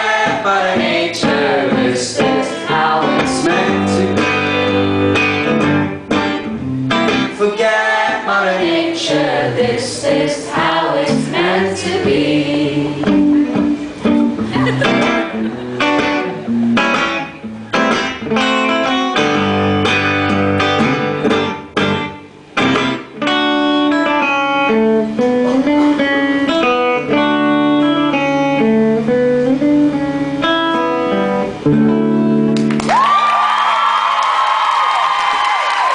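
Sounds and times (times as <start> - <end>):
guitar playing: 0.0 - 32.9
audience cheering and whistling: 32.8 - 35.9.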